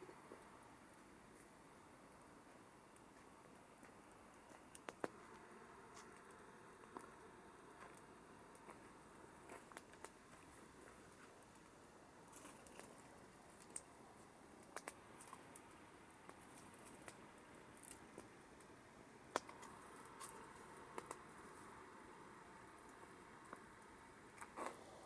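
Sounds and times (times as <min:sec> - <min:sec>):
soft fire hiss: 0:00.0 - 0:25.0
campfire pops and snaps: 0:00.2 - 0:25.0.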